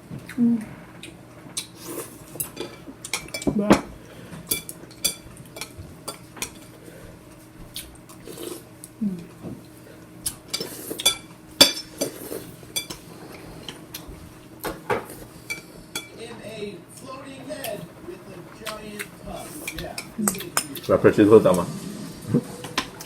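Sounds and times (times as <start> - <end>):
cutlery clinking against dishes: 2.4 - 6.8, 10.4 - 16.2.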